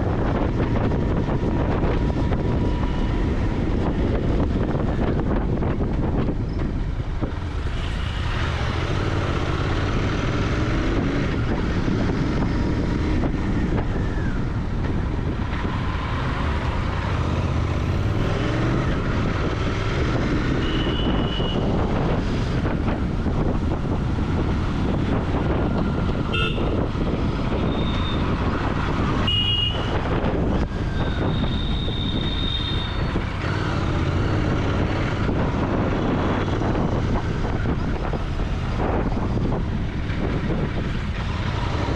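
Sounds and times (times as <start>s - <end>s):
motorcycle engine in traffic: 0.0s - 41.9s
car horn toots: 20.6s - 21.7s, 26.3s - 26.8s, 29.2s - 30.0s.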